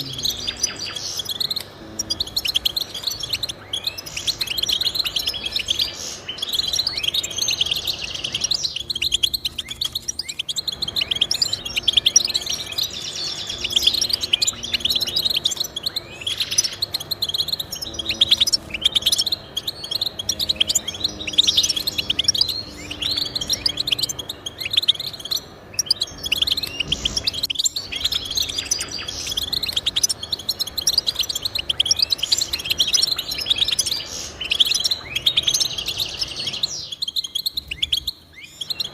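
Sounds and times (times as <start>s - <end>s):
finch twittering song: 0.0s - 38.9s.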